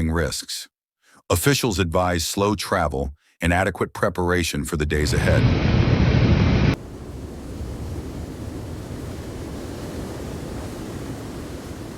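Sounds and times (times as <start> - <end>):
steady rushing noise: 5.0 - 7.4.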